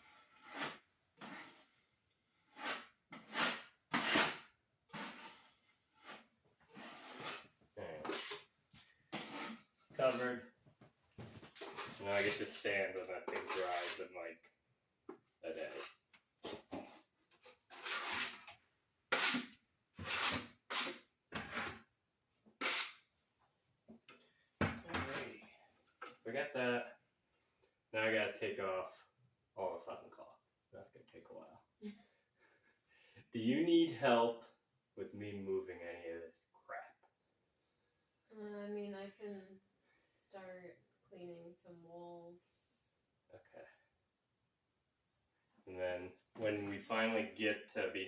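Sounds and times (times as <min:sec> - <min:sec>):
drywall knife scraping compound: 0:00.0 - 0:10.4, 0:11.5 - 0:14.1, 0:15.6 - 0:21.9, 0:22.5 - 0:23.1.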